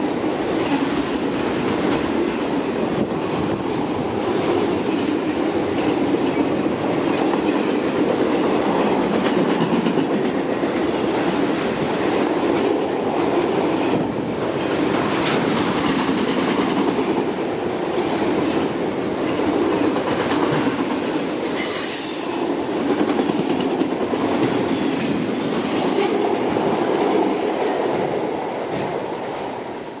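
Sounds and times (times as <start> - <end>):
freight train rumbling past: 0.0 - 30.0
wheel squeal: 21.4 - 22.4.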